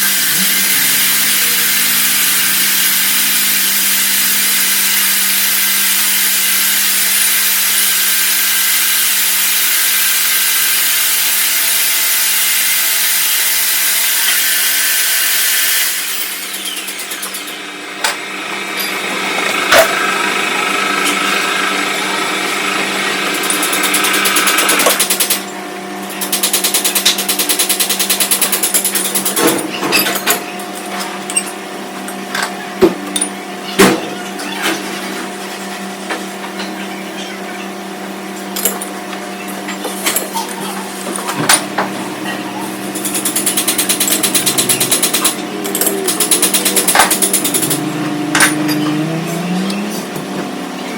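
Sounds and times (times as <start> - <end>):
tool hissing cutting metal: 0.0 - 17.7, 42.7 - 50.2
lathe motor hum: 0.0 - 25.0, 41.0 - 50.9
sharp clicks and knocks: 43.0 - 49.0.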